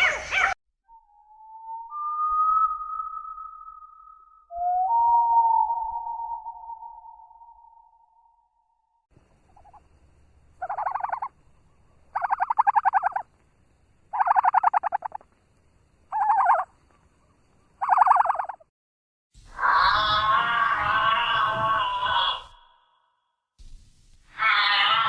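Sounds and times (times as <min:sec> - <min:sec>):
faint turkey call: 0:09.5 - 0:09.8, 0:10.6 - 0:13.2, 0:14.1 - 0:15.2, 0:16.1 - 0:16.7, 0:17.8 - 0:18.6
turkey gobbling: 0:10.6 - 0:11.3, 0:12.1 - 0:13.2, 0:14.1 - 0:15.2, 0:16.1 - 0:16.7, 0:17.8 - 0:18.6.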